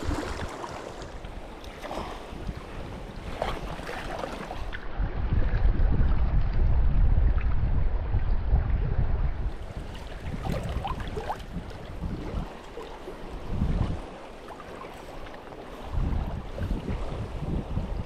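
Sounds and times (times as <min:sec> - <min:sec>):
river water rushing: 0:00.0 - 0:02.2
wind rumbling on microphone: 0:00.0 - 0:18.0.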